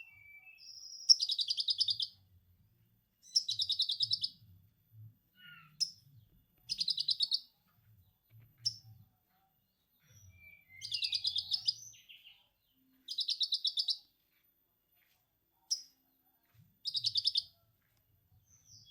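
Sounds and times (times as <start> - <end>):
sharp bird chirps: 0.0 - 2.2, 3.2 - 4.4, 6.7 - 7.5, 10.2 - 12.4, 13.1 - 14.1, 16.8 - 17.5
whistled bird notes: 10.2 - 12.4.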